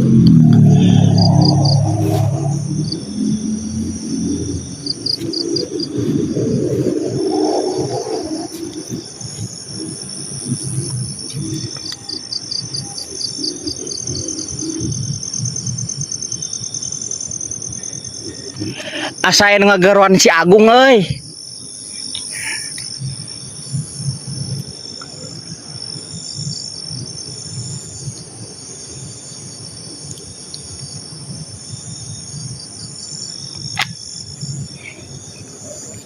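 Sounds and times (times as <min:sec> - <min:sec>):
crickets chirping: 0:00.0 - 0:36.0
high-pitched insect whine: 0:00.0 - 0:36.0.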